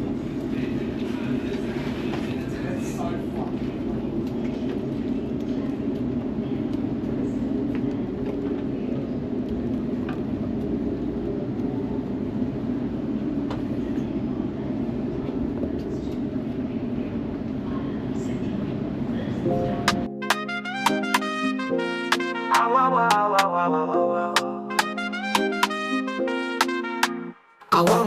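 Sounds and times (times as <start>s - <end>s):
train carriage rumble: 0.0s - 19.9s.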